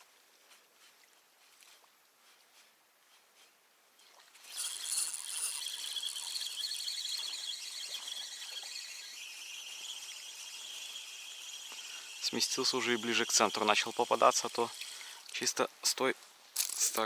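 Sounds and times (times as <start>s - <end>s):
insects chirring: 4.5s - 15.4s.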